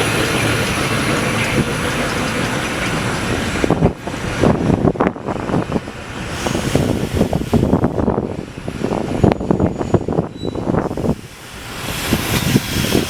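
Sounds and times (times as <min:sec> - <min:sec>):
steam locomotive hissing: 0:05.4 - 0:13.0
short knocks and gusts: 0:10.8 - 0:13.0.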